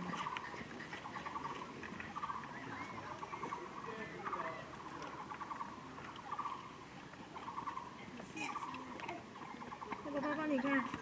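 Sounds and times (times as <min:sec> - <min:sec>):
bird trills: 0:00.1 - 0:06.8, 0:07.4 - 0:08.8.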